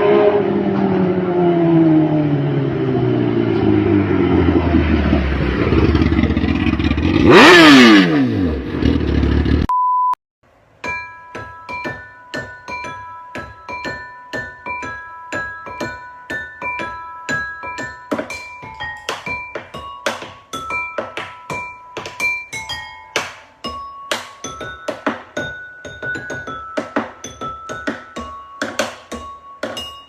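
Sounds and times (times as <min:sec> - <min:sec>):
motorcycle engine running: 0:02.8 - 0:09.7
marimba-like music notes: 0:10.8 - 0:30.0.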